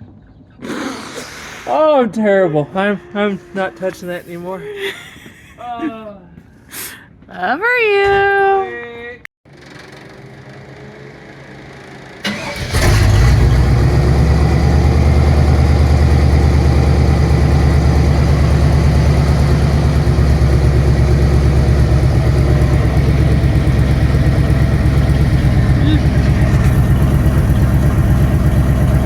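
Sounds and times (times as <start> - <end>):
engine cranking: 9.5 - 11.1, 11.7 - 29.0
car engine idling loudly: 9.5 - 29.0.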